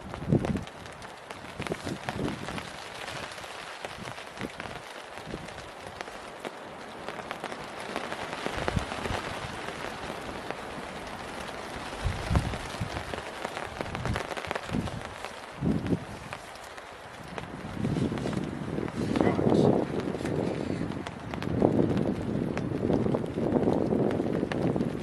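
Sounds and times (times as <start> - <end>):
rain falling: 0.0 - 25.0.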